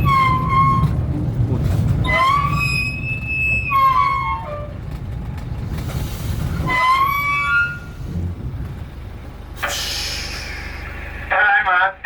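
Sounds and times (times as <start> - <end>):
rail cart rumbling on track: 0.0 - 12.0
high whistling horn tones: 2.0 - 4.7.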